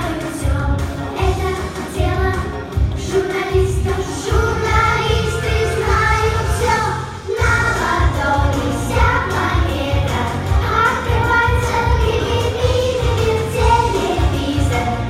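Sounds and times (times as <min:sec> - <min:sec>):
children singing: 0:03.0 - 0:15.0.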